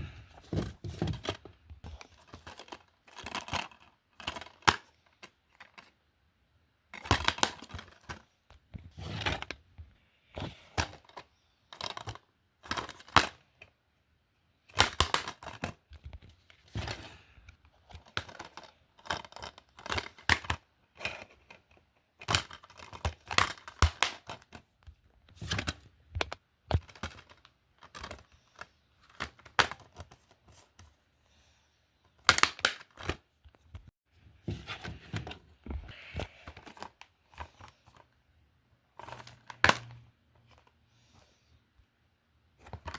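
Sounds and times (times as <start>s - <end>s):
plastic cases clicking and rustling: 0.0s - 6.0s, 6.9s - 9.7s, 10.4s - 13.4s, 14.7s - 30.9s, 34.5s - 38.2s, 38.9s - 40.7s, 42.6s - 42.9s.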